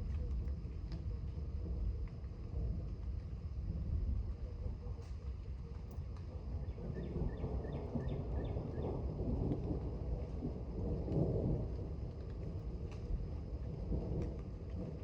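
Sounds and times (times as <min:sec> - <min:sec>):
thunder rumbling: 0:06.4 - 0:15.0.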